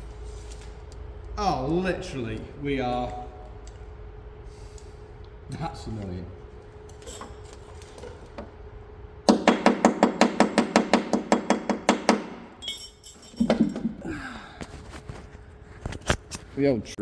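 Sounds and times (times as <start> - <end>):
hammer striking steel: 9.3 - 12.9.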